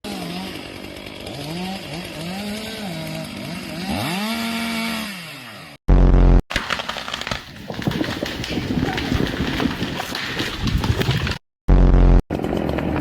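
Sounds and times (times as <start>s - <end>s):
chainsaw revving: 0.0s - 5.8s.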